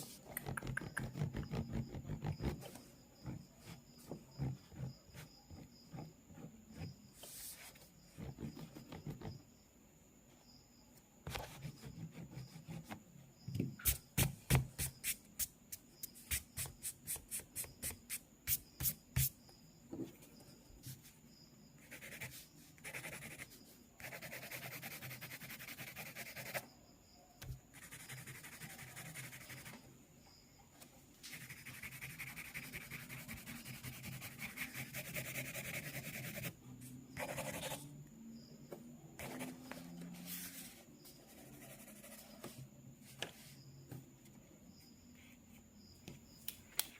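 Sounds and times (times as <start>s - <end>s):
pencil sketching on paper: 21.9s - 26.6s, 27.8s - 29.7s, 31.3s - 36.5s.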